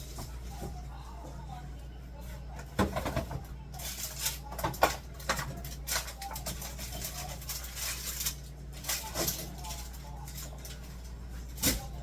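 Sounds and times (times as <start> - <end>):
food containers knocking and clinking: 2.5 - 8.0.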